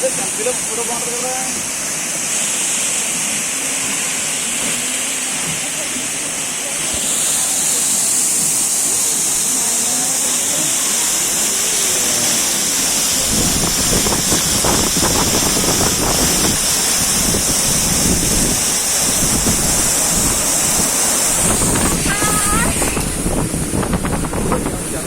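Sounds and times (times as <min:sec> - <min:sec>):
large waterfall roaring: 0:00.0 - 0:25.0
wind buffeting microphone: 0:13.1 - 0:25.0.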